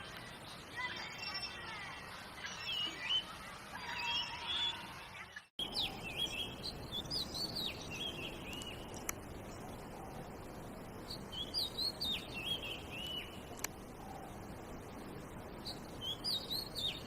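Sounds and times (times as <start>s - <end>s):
background hiss: 0.0s - 17.0s
bird singing whistled notes: 2.4s - 3.3s, 5.6s - 8.9s, 11.0s - 13.4s, 15.6s - 17.0s.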